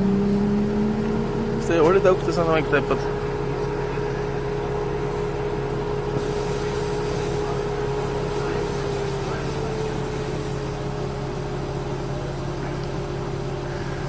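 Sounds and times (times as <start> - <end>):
machine humming: 0.0 - 14.0.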